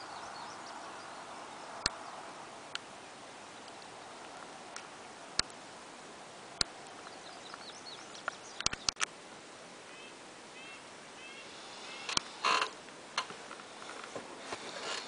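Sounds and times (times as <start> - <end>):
faint steady hiss: 0.0 - 15.0
songbirds chirping: 0.0 - 15.0
sharp clicks: 6.6 - 9.1, 12.1 - 13.3.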